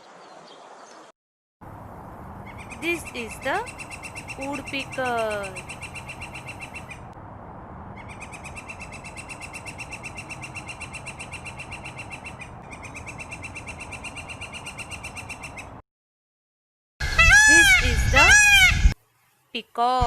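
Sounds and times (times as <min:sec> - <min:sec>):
woodpecker chirping: 0:02.3 - 0:07.1, 0:07.9 - 0:15.8.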